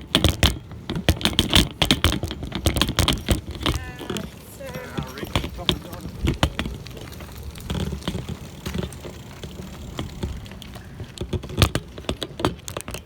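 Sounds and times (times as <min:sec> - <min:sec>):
knocks and rattling clatter: 0:00.0 - 0:13.0.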